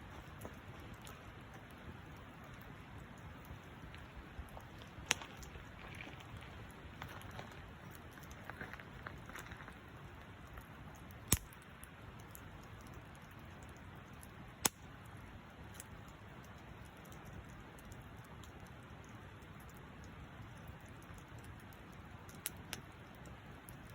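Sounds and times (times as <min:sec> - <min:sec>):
campfire crackling: 0:00.0 - 0:23.9
sharp fire pops: 0:03.9 - 0:05.7, 0:11.1 - 0:12.5, 0:14.6 - 0:15.0.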